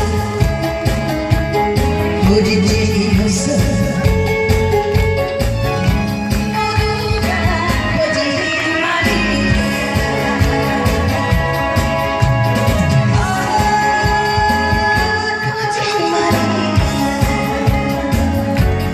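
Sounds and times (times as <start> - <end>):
backing track with steady beat: 0.0 - 18.9
woman singing over sound system: 2.1 - 4.4, 6.5 - 18.9.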